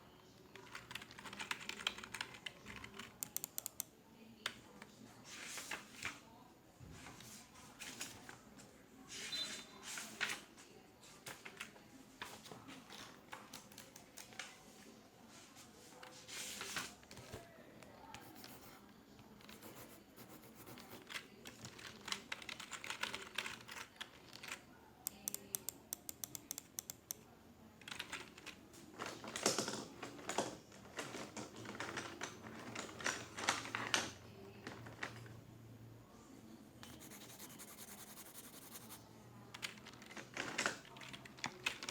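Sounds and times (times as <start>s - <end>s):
typing on computer keyboard: 0.5s - 3.9s, 12.9s - 14.4s, 19.4s - 27.2s, 27.8s - 28.6s, 36.8s - 41.9s.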